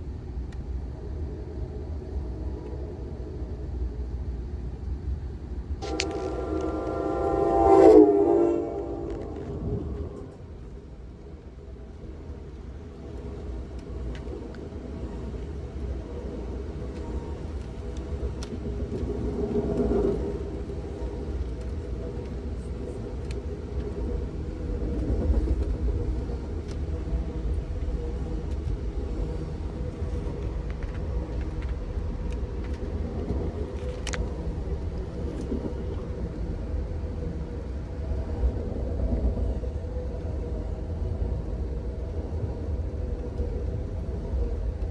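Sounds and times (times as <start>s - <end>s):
train car rumbling on track: 0.0s - 44.9s.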